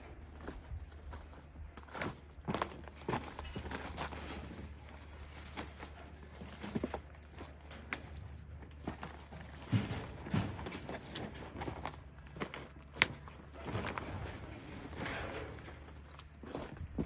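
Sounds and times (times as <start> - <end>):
footsteps: 0.0 - 17.0
heavy thuds: 9.2 - 11.9.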